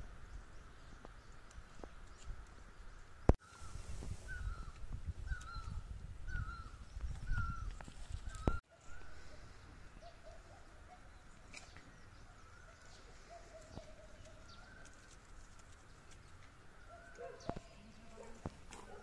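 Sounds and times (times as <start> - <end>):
faint whistled bird calls: 3.4 - 15.0.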